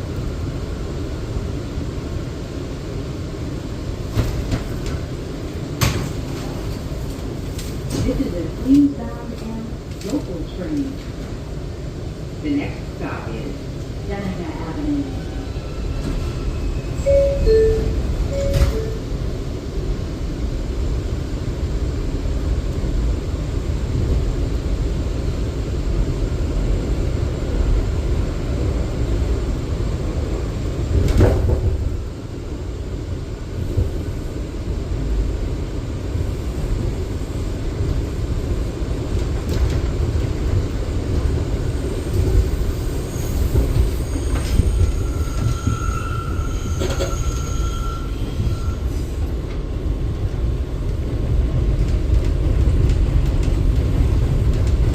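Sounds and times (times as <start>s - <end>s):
subway wheels rumbling on rail: 0.0s - 54.9s
thin wheel squeal: 44.0s - 48.8s.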